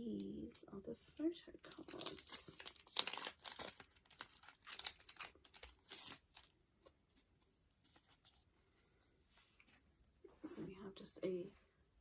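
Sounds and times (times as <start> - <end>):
packaging crinkling and tearing: 1.0 - 6.5
faint handling noises: 6.4 - 12.0.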